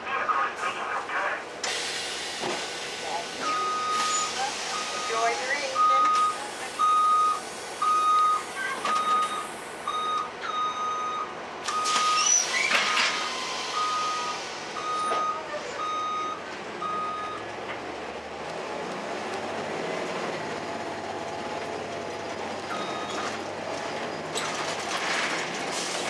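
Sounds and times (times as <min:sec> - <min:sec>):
bus reversing alarm beeping: 0:03.4 - 0:17.6, 0:22.0 - 0:23.5.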